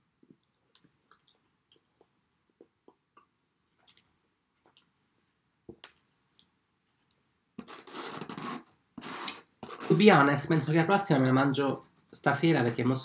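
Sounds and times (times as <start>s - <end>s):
person chewing food: 0.2s - 5.1s.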